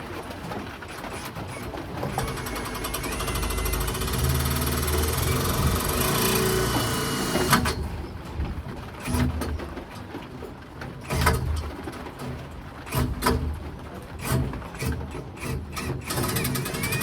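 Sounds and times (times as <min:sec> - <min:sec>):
power drill driving screws: 0:00.9 - 0:07.8, 0:15.7 - 0:17.0
drill clicks: 0:00.9 - 0:07.9, 0:14.2 - 0:17.0.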